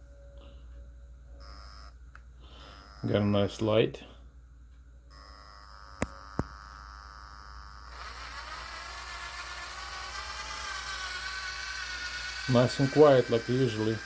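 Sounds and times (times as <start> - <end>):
cordless tool motor whirring: 5.1 - 14.0.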